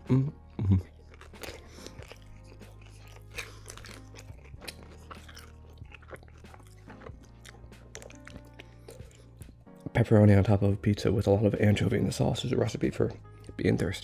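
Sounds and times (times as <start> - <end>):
soft background music: 0.0 - 14.0
crunching pizza crust: 0.7 - 9.2.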